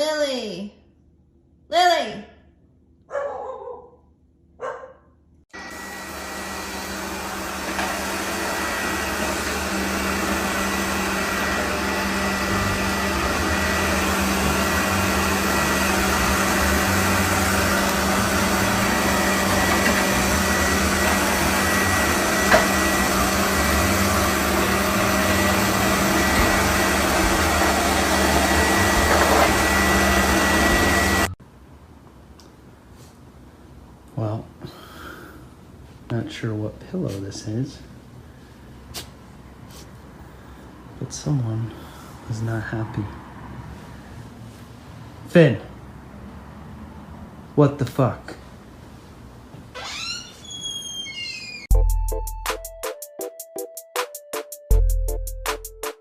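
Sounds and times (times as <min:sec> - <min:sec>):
electric motor and fan whirring: 0:05.5 - 0:31.4.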